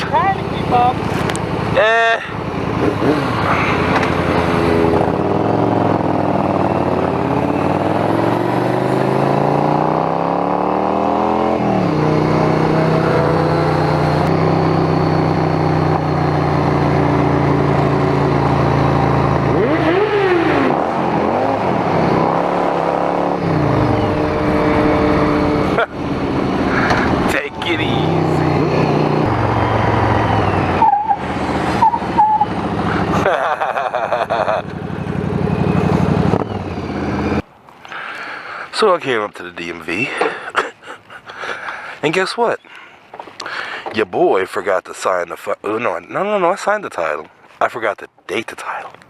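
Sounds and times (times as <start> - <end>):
motorcycle engine accelerating: 0.0 - 37.5.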